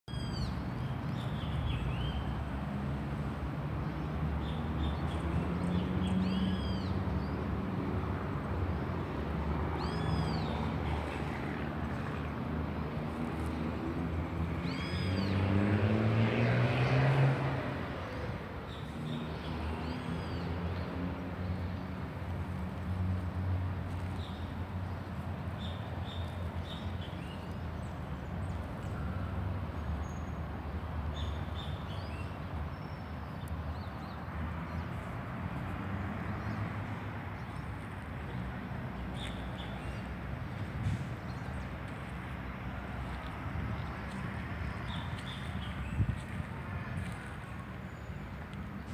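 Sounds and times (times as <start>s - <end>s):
low traffic rumble: 0.1s - 48.9s
vehicle passing: 7.5s - 24.0s, 34.2s - 48.9s
small birds chirping: 36.4s - 42.2s.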